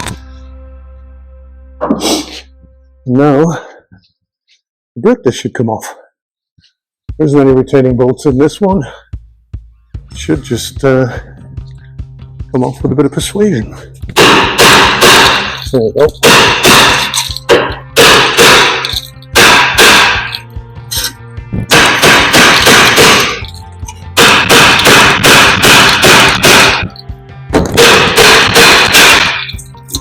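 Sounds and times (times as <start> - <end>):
hammering on metal: 14.2 - 20.3, 21.7 - 23.4, 24.2 - 26.9, 27.6 - 29.5.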